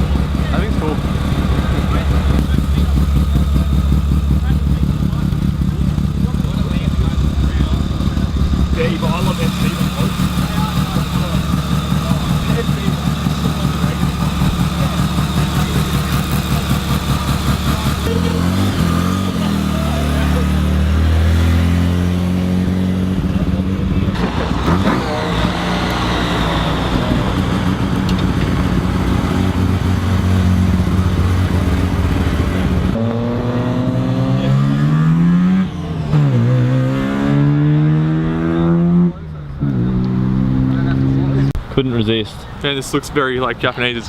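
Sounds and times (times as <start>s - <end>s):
car engine idling: 0.0s - 33.1s
car engines revving: 0.0s - 44.0s.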